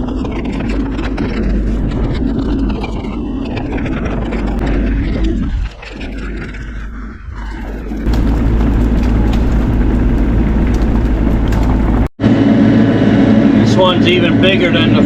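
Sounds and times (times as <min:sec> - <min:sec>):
excavator diesel engine running: 0:07.6 - 0:14.9.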